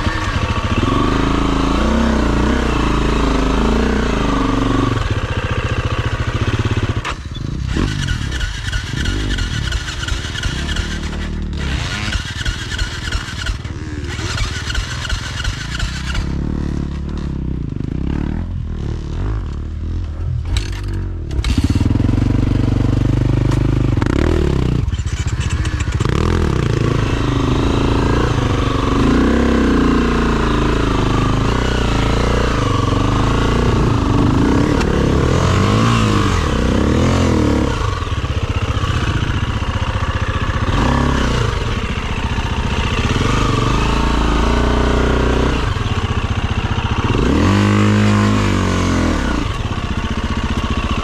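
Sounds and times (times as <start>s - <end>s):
dirt bike engine revving: 0.0s - 51.0s.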